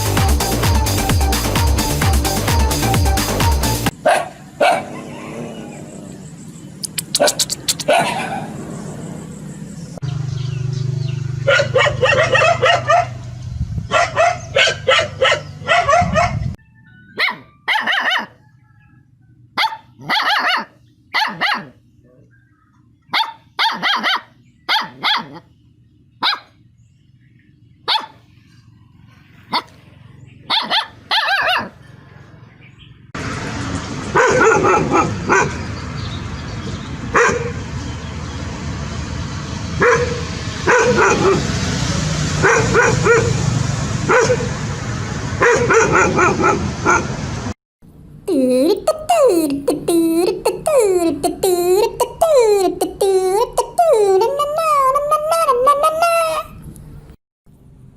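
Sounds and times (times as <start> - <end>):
dog barking: 4.0 - 5.5, 6.8 - 8.6, 11.4 - 13.2, 13.9 - 16.5, 17.2 - 18.4, 19.6 - 21.8, 23.1 - 25.5, 26.2 - 26.6, 27.8 - 28.2, 29.5 - 29.8, 30.4 - 31.8, 34.1 - 35.6, 37.1 - 37.6, 39.8 - 41.5, 42.4 - 43.4, 44.0 - 44.6, 45.4 - 47.1.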